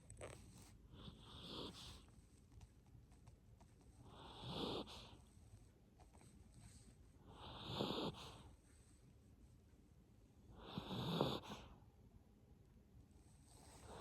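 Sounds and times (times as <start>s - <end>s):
dog snoring faintly: 0.2s - 2.1s, 3.9s - 5.4s, 6.1s - 8.8s, 10.5s - 11.8s, 13.2s - 14.0s.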